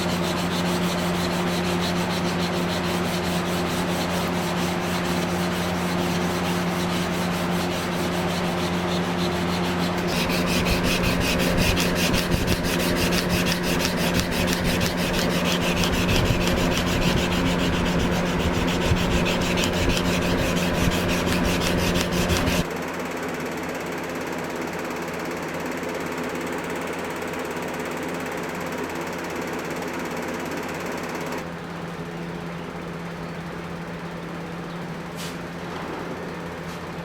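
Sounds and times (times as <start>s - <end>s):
belt grinder motor hum: 0.0s - 22.7s.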